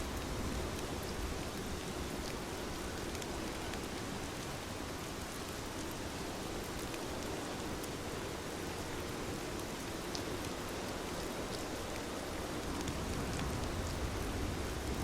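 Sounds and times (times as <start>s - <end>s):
raindrops ticking on a surface: 0.0s - 15.0s.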